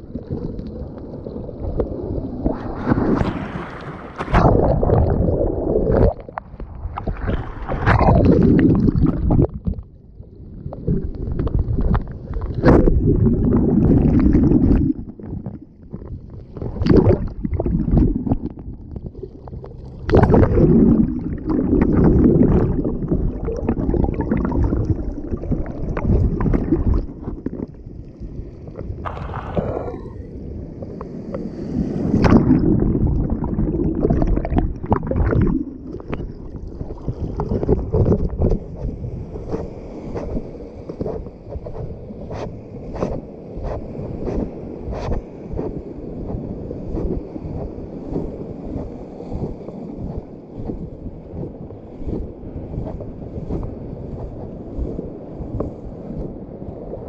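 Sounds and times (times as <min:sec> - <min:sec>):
wind buffeting microphone: 0:31.9 - 0:57.0.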